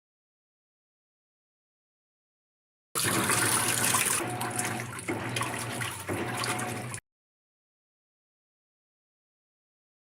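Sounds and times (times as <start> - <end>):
low motor hum: 3.0 - 7.0
water sloshing in washer tub: 3.0 - 7.0.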